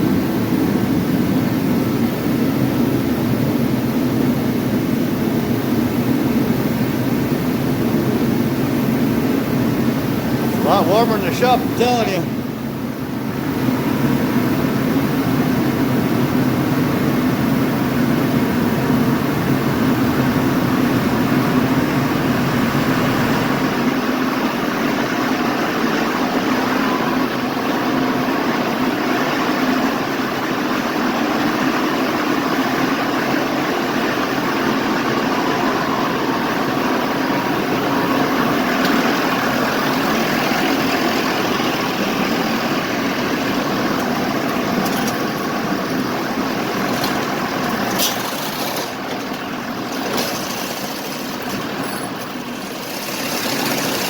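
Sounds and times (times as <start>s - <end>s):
engine idling: 32.2s - 54.0s.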